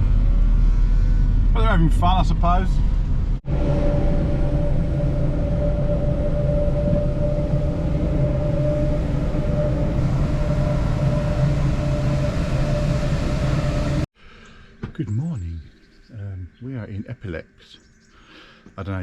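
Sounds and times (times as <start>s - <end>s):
thin steady whine: 0.0s - 14.1s
engine and road rumble: 0.0s - 15.1s.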